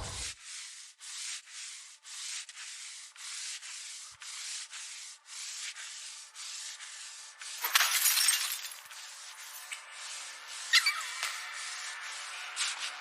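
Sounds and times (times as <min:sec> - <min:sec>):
rhythmic sanding strokes: 0:00.0 - 0:07.7, 0:08.8 - 0:13.0.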